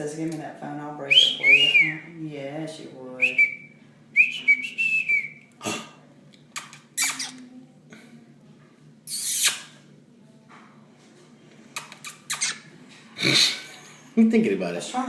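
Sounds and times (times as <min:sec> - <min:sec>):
parrot whistle: 0:03.2 - 0:05.4.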